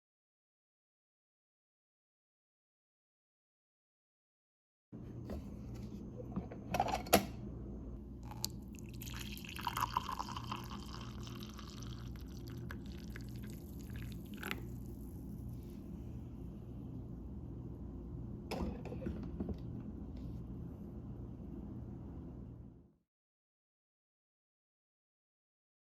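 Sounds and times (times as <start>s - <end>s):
low steady hum: 5.0s - 23.0s
coffee being poured: 8.2s - 15.5s.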